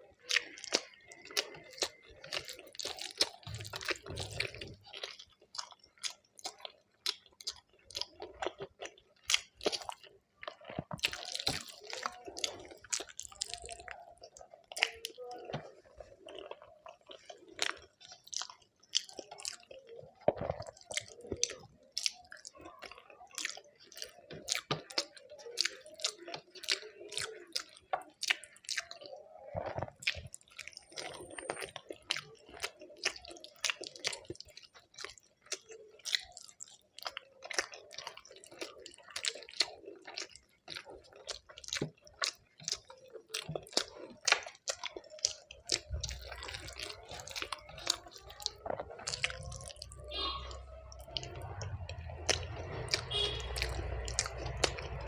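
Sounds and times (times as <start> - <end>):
wet chewing with mouth clicks: 0.0 - 55.0.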